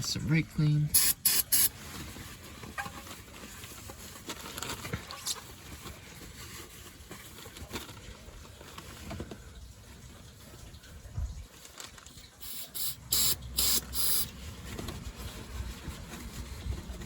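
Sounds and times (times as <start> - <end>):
liquid dripping and pattering: 7.4 - 12.7.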